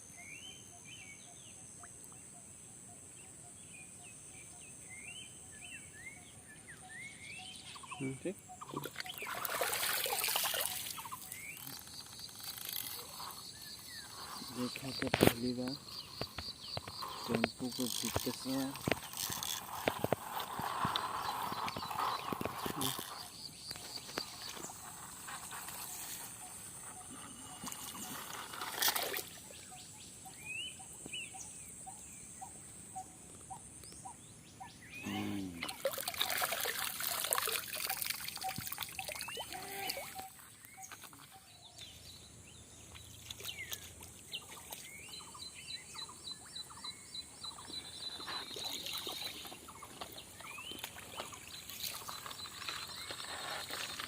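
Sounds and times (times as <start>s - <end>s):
birds chirping: 3.2s - 54.0s
water trickling and pouring: 8.8s - 11.8s, 35.6s - 40.4s, 48.2s - 54.0s.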